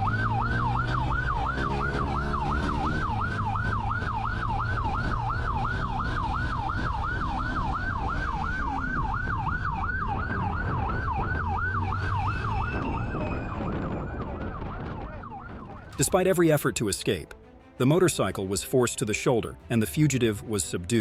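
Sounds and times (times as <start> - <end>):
police siren yelping: 0.0 - 16.0
moving vehicle rumble: 0.0 - 16.3.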